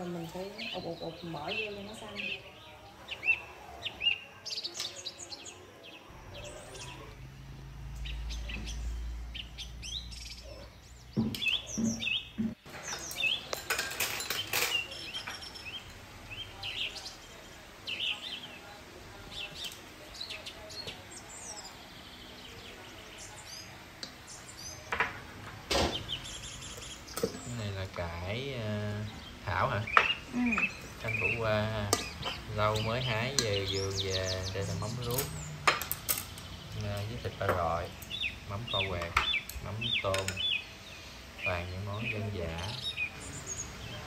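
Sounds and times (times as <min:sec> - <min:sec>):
small birds chirping: 0:00.0 - 0:44.0
dishes clinking on a table: 0:11.2 - 0:15.6, 0:24.9 - 0:26.0, 0:35.1 - 0:36.4.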